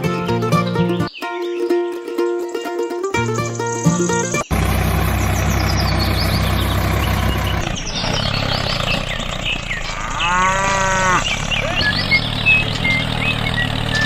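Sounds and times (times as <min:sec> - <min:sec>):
music: 0:00.0 - 0:04.5
birds chirping: 0:00.0 - 0:14.0
small tractor engine running: 0:03.2 - 0:14.0
cow mooing: 0:09.8 - 0:11.8.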